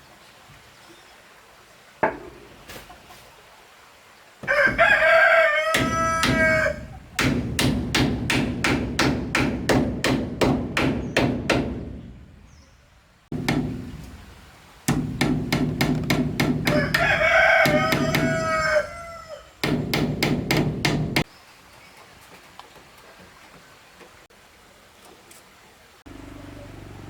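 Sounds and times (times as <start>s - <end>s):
rooster crowing: 4.4s - 7.0s, 16.6s - 19.6s
rapid rhythmic knocking: 5.8s - 12.0s, 14.9s - 18.3s, 19.6s - 21.2s.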